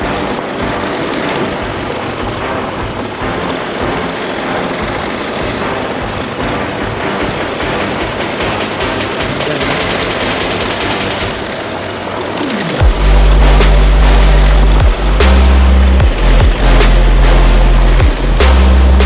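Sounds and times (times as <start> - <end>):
wind rush: 0.0 - 19.0
motorcycle engine running: 12.4 - 18.6.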